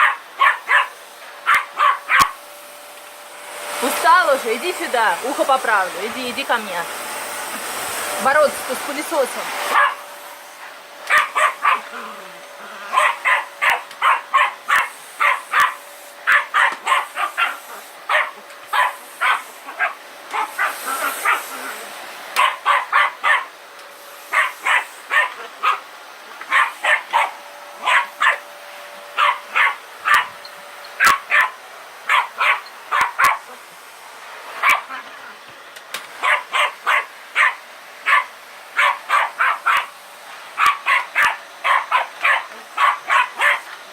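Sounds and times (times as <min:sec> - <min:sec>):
small dog barking: 0:00.0 - 0:02.4, 0:09.7 - 0:10.1, 0:11.1 - 0:21.8, 0:22.4 - 0:23.6, 0:24.3 - 0:28.5, 0:29.2 - 0:30.4, 0:31.0 - 0:33.6, 0:34.6 - 0:35.4, 0:36.2 - 0:40.0, 0:40.6 - 0:43.8
vacuum cleaner hum: 0:00.0 - 0:43.9.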